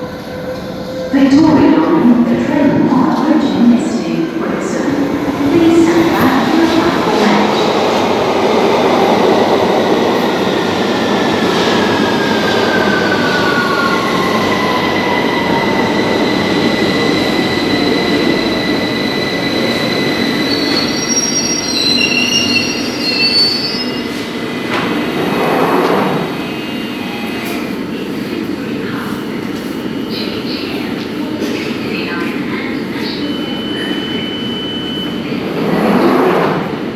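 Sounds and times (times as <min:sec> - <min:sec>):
wheel and brake squeals: 0:19.6 - 0:24.2.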